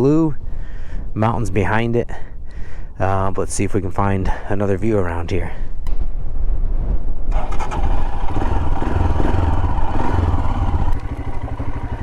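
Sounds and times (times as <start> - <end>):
motorcycle engine running: 7.4 - 12.0.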